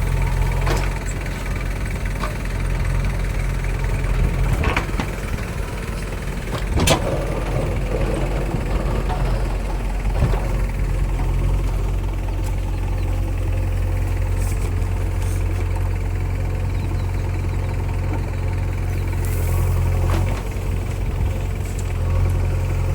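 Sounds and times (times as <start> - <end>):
diesel engine running: 0.0 - 22.9.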